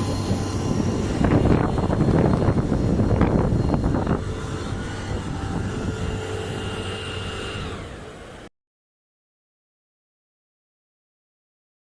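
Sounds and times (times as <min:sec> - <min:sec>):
faint machinery whine: 0:00.0 - 0:08.5.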